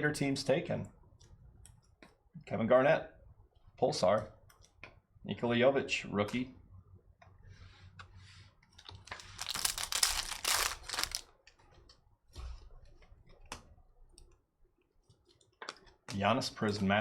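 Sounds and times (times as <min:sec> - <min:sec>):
foil wrapper tearing and crinkling: 0:09.0 - 0:11.3.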